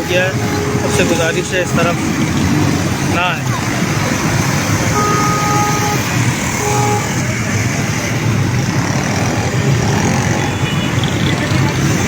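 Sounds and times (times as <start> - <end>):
vehicle horn beeping: 0.0 - 3.4, 4.8 - 7.6
road traffic: 0.0 - 12.0.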